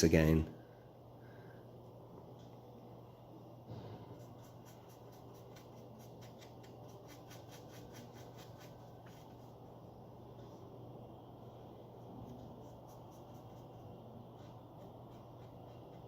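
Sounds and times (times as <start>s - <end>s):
steady low hum: 0.0s - 16.0s
brush scratching on fabric: 4.1s - 9.8s, 12.2s - 16.0s.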